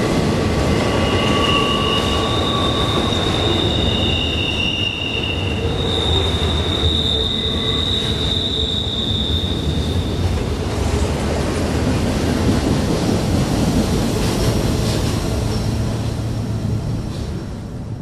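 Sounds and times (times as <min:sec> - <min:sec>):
rumble of wheels on rail: 0:00.0 - 0:18.0
train wheels squealing: 0:00.6 - 0:10.5.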